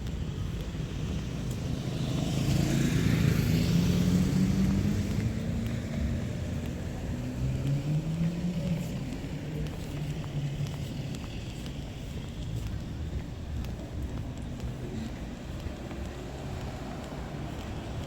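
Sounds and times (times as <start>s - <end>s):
vehicle engine passing by: 1.1s - 11.8s.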